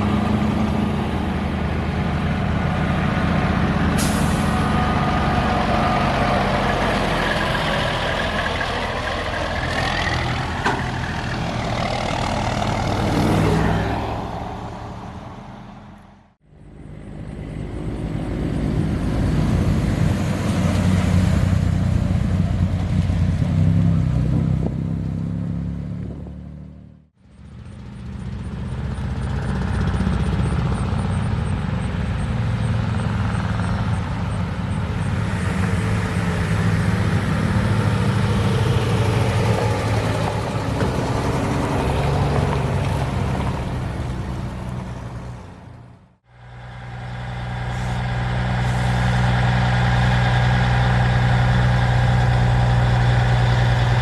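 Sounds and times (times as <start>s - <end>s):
heavy truck diesel engines: 0.0s - 54.0s.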